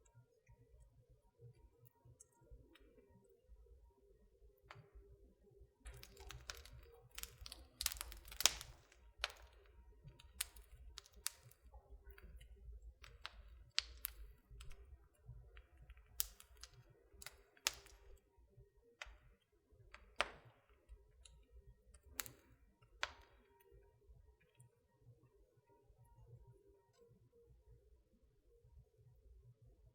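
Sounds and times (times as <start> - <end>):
wood fire crackling: 5.8 - 23.9.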